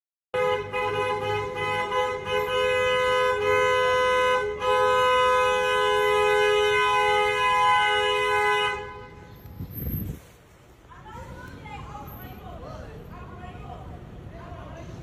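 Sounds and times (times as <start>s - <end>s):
car horn long blast: 0.3s - 10.0s.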